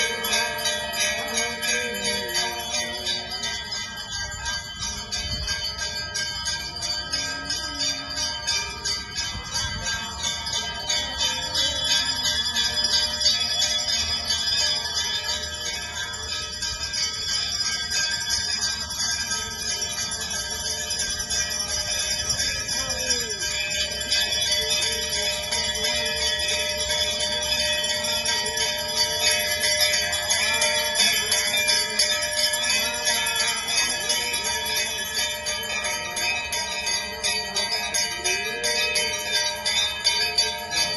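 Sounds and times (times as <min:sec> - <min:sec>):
small bells jingling: 0:00.0 - 0:40.9.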